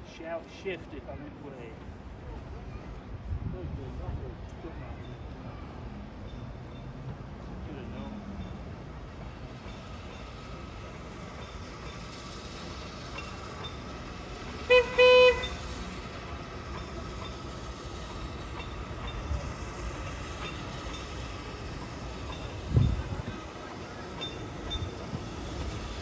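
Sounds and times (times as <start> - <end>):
steam locomotive whistle: 14.6 - 15.8.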